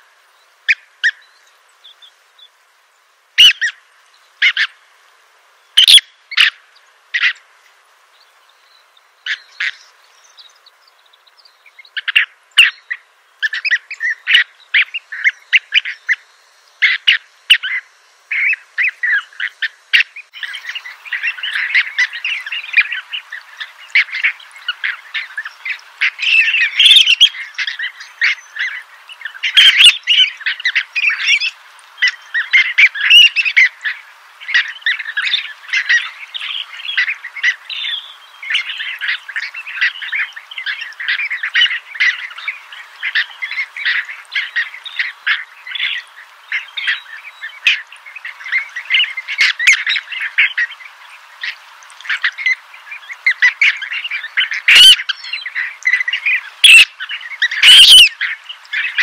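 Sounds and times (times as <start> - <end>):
birds chirping: 5.8 - 59.0.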